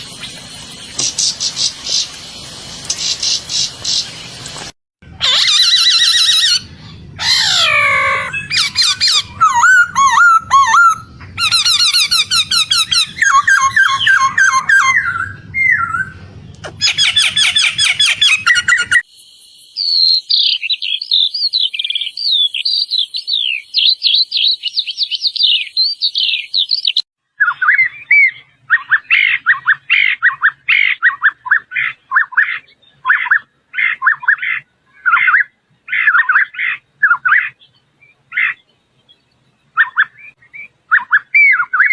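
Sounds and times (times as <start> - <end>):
bird whistles and trills: 5.4 - 19.1, 19.7 - 38.6, 39.8 - 41.9
high thin bird twittering: 7.2 - 27.0.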